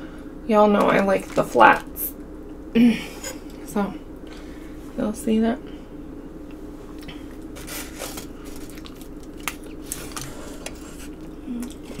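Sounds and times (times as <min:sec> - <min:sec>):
biting and chewing: 0:07.4 - 0:12.0.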